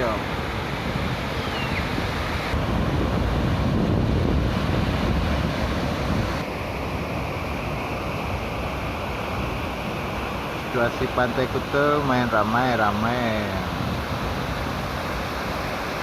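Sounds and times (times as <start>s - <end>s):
wind buffeting microphone: 0.0s - 7.1s, 13.1s - 16.0s
ocean surf breaking: 0.0s - 16.0s.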